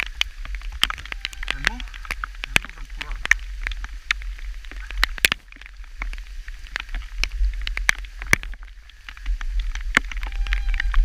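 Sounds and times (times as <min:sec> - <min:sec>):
hailstones striking surfaces: 0:00.0 - 0:11.0.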